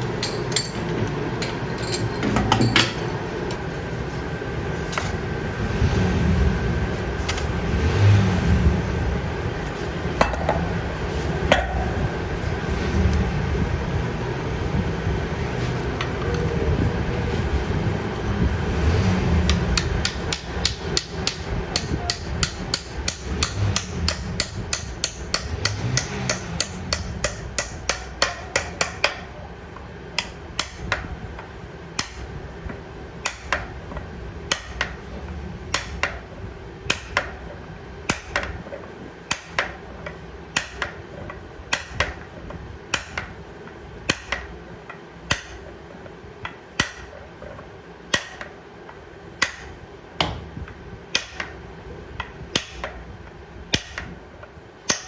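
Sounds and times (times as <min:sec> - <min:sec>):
hammer striking metal: 0:00.0 - 0:03.0, 0:19.5 - 0:29.3, 0:30.2 - 0:31.1, 0:32.0 - 0:32.3, 0:33.2 - 0:33.8, 0:34.5 - 0:35.0, 0:35.7 - 0:36.2, 0:36.9 - 0:37.5, 0:38.1 - 0:38.6, 0:39.3 - 0:41.0, 0:41.7 - 0:42.3, 0:42.9 - 0:43.3, 0:44.1 - 0:44.6, 0:45.3 - 0:45.6, 0:46.8 - 0:47.2, 0:48.1 - 0:48.6, 0:49.4 - 0:50.4, 0:51.1 - 0:51.6, 0:52.2 - 0:53.0, 0:53.7 - 0:54.1
low machine hum: 0:00.0 - 0:55.0.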